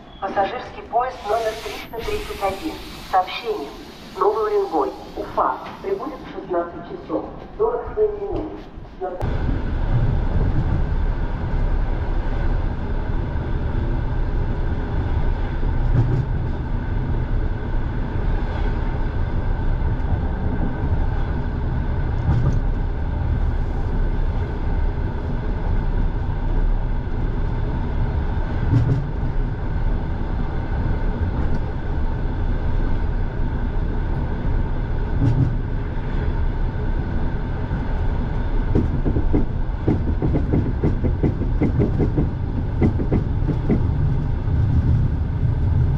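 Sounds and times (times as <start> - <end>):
train carriage rumbling: 0.0 - 45.9.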